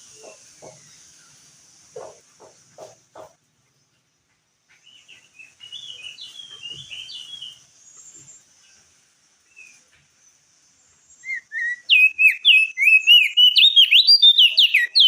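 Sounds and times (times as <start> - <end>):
bird twittering: 4.8 - 8.4, 11.1 - 15.0.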